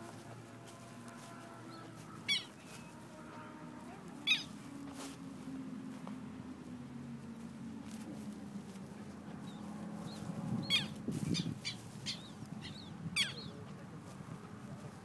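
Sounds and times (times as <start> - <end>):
low steady hum: 0.0 - 15.0
bird harsh calls: 1.7 - 2.8, 4.2 - 4.5, 9.5 - 13.6.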